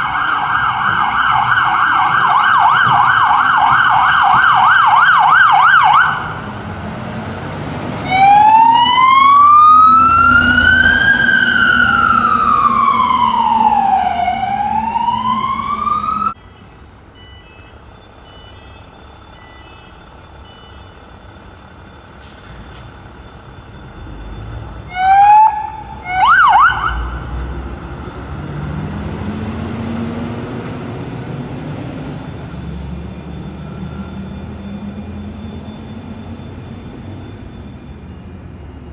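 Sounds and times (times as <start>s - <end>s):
siren whoops: 0.0s - 6.4s, 8.0s - 16.4s, 24.7s - 31.2s
heavy truck engine accelerating: 0.0s - 17.2s, 22.1s - 37.5s
fire engine siren: 0.0s - 38.7s.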